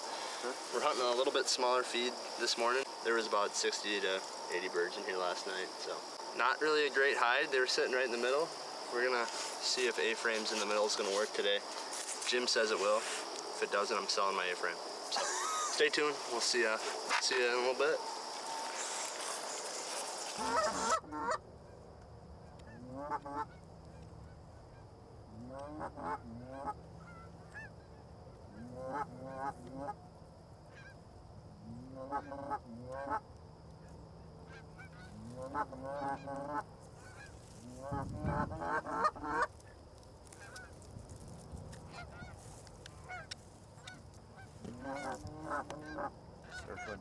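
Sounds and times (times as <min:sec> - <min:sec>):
goose honking: 0:19.9 - 0:21.4, 0:34.8 - 0:39.5, 0:43.0 - 0:47.0.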